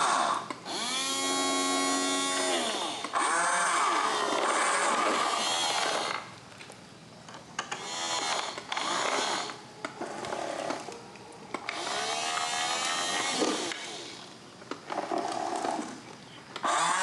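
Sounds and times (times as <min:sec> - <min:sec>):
small electric motors whining: 0:00.0 - 0:06.3, 0:07.6 - 0:17.0.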